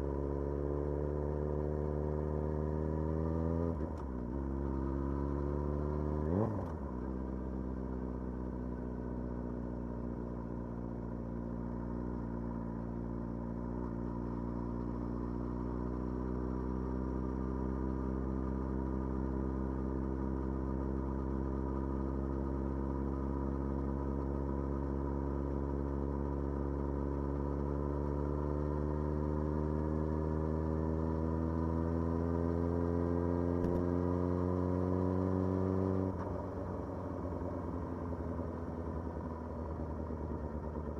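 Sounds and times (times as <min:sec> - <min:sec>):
motorcycle engine accelerating: 0:27.4 - 0:40.9.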